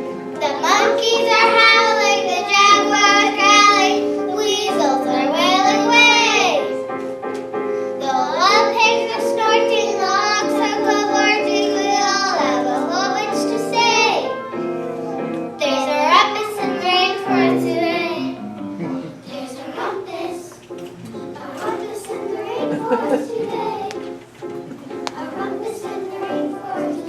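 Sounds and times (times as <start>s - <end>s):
children singing: 0.0s - 6.8s, 8.0s - 14.4s, 15.2s - 27.0s
musical accompaniment: 8.6s - 27.0s.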